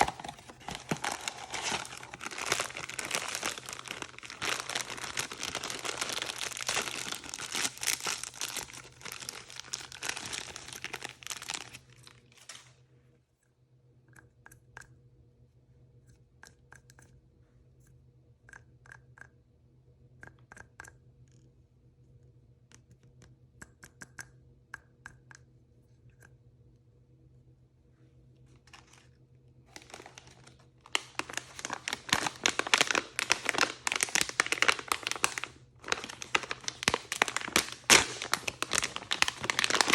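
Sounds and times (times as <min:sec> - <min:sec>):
plastic packaging crinkling and tearing: 0:00.0 - 0:12.7, 0:28.6 - 0:29.1, 0:29.7 - 0:39.9.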